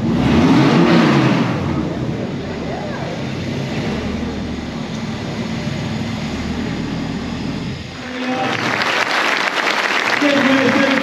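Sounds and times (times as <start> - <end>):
motorcycle engine pulsing: 0.0 - 8.4
applause: 8.0 - 11.0.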